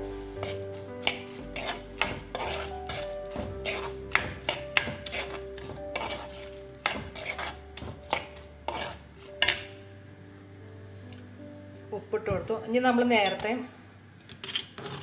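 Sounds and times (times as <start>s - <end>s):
spoon scraping a pan: 0.0s - 9.8s, 14.4s - 15.0s.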